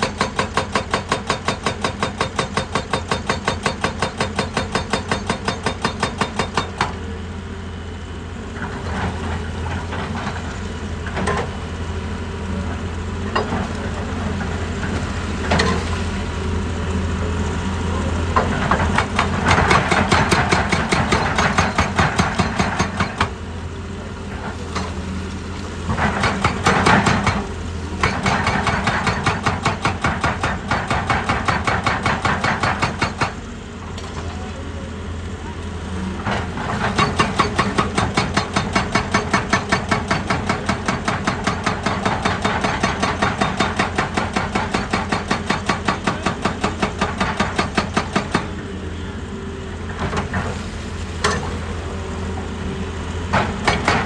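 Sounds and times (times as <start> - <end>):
hydraulic rock breaker hammering: 0.0 - 7.1, 13.3 - 15.9, 18.0 - 23.5, 25.8 - 34.6, 36.2 - 48.8, 53.2 - 54.0
diesel engine running: 6.2 - 54.0.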